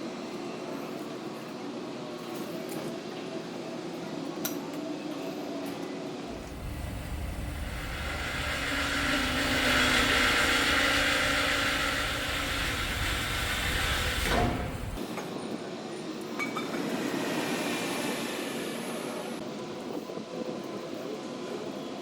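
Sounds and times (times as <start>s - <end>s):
metal-cutting saw cutting steel: 6.3s - 15.0s.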